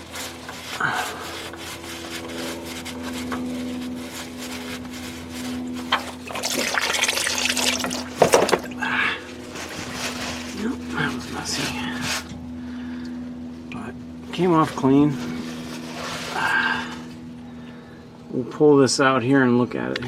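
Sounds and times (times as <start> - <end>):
faint steady hum: 0.0 - 20.0
oil trickling into a pan: 6.3 - 8.1.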